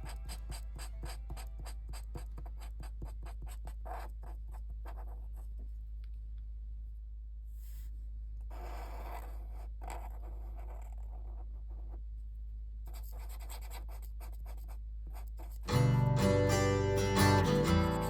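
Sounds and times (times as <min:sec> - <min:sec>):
pen scratching on paper: 0:00.0 - 0:05.4, 0:08.5 - 0:12.0, 0:12.9 - 0:15.7.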